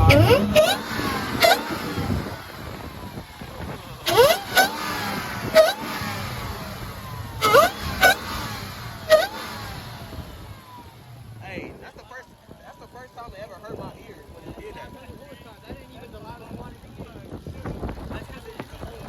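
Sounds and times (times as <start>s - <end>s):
car engine revving: 0.0s - 11.9s
supercharger whine: 0.0s - 17.0s.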